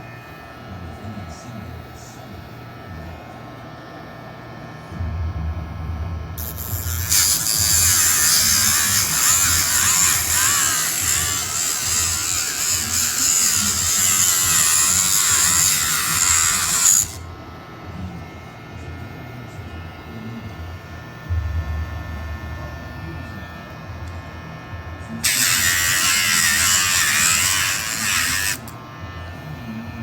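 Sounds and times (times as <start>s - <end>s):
electric nail grinder whining: 6.4s - 17.8s, 23.4s - 30.0s.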